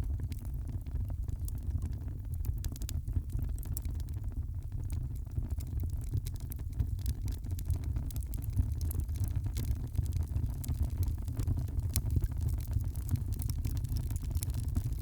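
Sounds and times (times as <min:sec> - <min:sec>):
fireplace fire crackling: 0:06.3 - 0:15.0.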